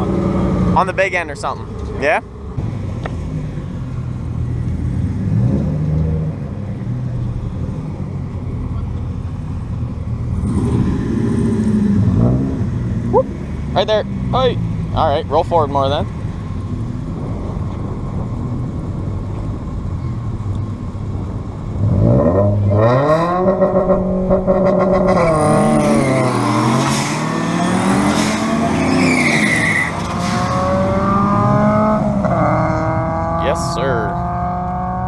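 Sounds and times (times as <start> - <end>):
truck engine revving: 10.3 - 15.2.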